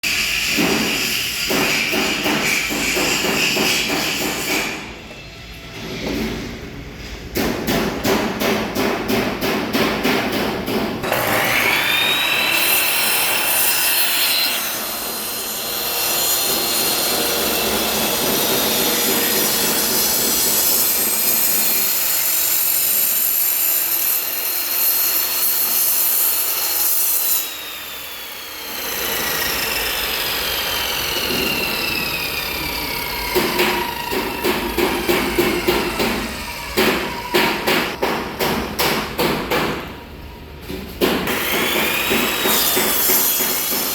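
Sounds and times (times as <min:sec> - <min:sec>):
saw cutting wood: 0:11.0 - 0:38.2, 0:41.2 - 0:43.9.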